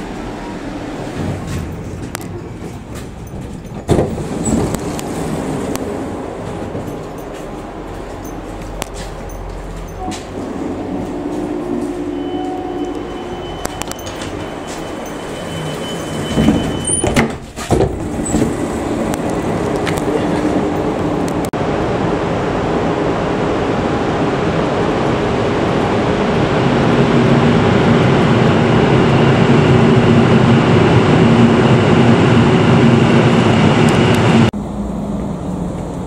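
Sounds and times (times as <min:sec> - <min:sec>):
train interior rumble: 0:00.0 - 0:36.0
sliding door clunks: 0:00.9 - 0:07.1, 0:15.7 - 0:20.0
thin high whine: 0:08.2 - 0:17.0.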